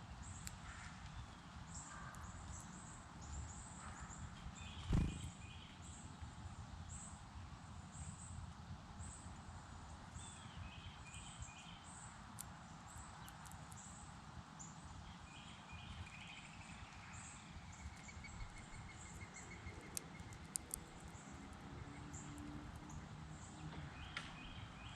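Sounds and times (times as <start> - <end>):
bird calls: 4.6 - 5.7
low steady rumble: 4.8 - 5.4.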